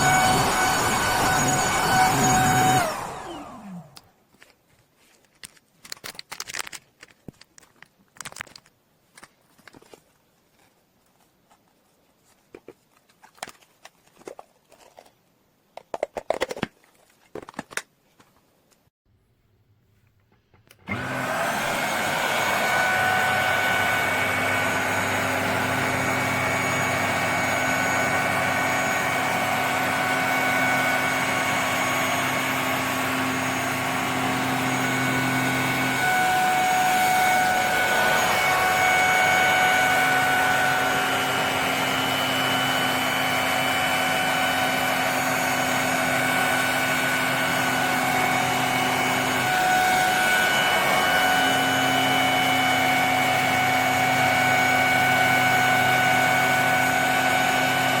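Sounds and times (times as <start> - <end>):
handheld vacuum cleaner whirring: 0.0 - 4.5, 20.7 - 58.0.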